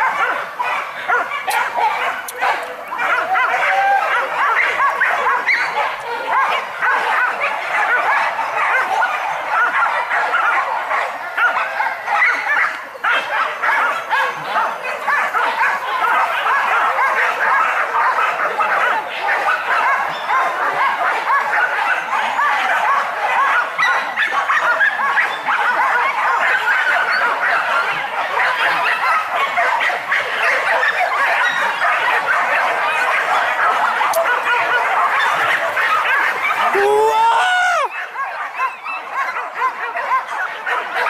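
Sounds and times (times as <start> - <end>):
dogs barking and yelping: 0.0 - 41.0.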